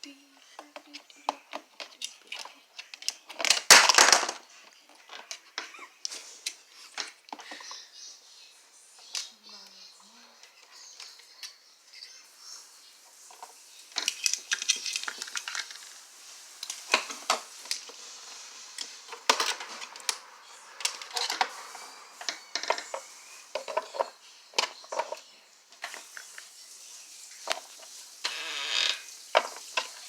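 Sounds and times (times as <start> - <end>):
plastic toy pieces clicking: 0.6 - 5.7, 13.9 - 15.9.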